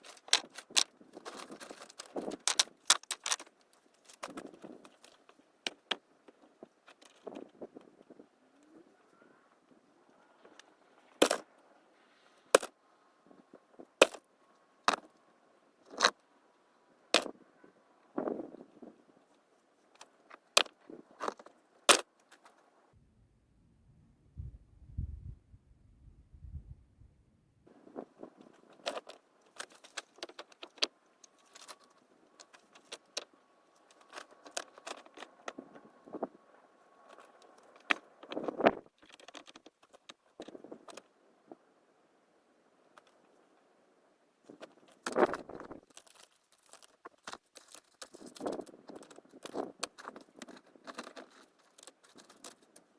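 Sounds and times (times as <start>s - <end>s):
small hard objects clinking: 0.0s - 3.5s.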